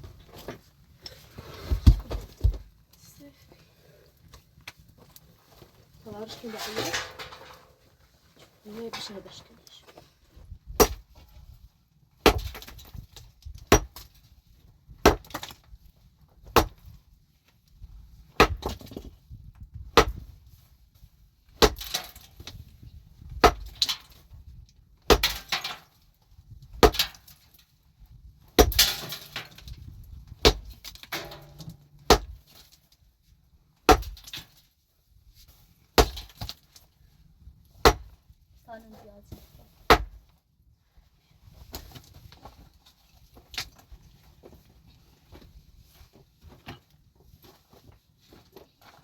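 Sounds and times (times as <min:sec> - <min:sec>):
short rattle or scrape: 0:06.4 - 0:07.8.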